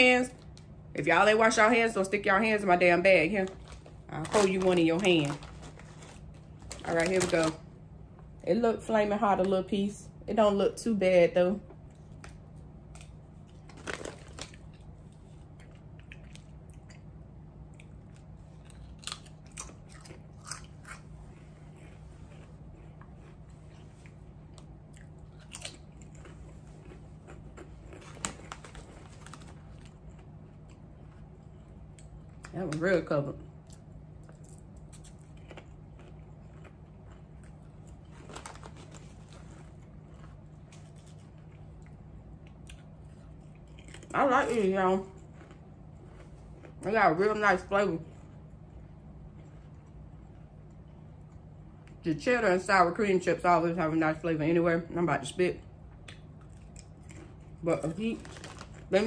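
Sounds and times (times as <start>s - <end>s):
steady low hum: 0.0s - 59.0s
potato chips crunching: 2.3s - 7.6s, 12.0s - 47.7s, 56.0s - 59.0s
person chewing: 12.9s - 32.5s, 33.5s - 44.1s, 45.2s - 46.8s.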